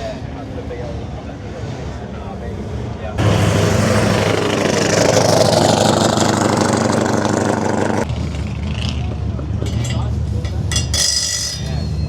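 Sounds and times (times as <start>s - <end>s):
loud car engine running: 3.2s - 9.6s.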